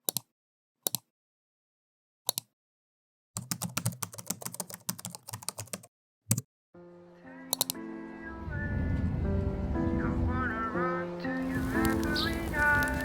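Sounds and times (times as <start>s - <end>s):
sharp clicks: 7.5s - 7.8s.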